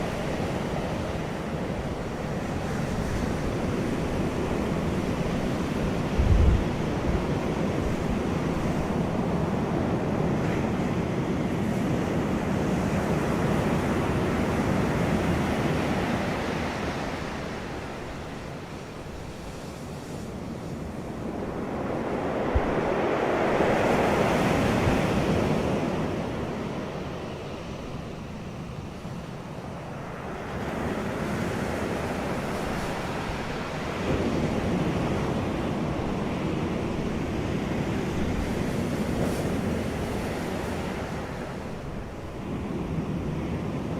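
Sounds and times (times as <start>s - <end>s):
wind on microphone: 0.0s - 18.5s, 19.3s - 28.0s.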